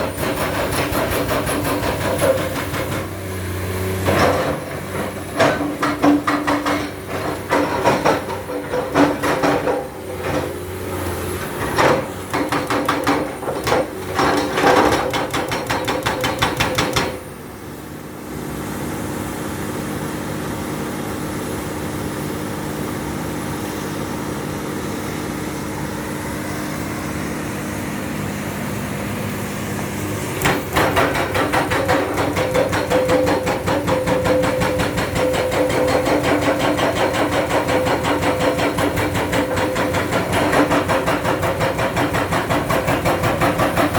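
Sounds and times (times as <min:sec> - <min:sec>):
hydraulic rock breaker hammering: 0:00.0 - 0:17.4, 0:30.3 - 0:43.9
excavator engine running: 0:00.0 - 0:43.9.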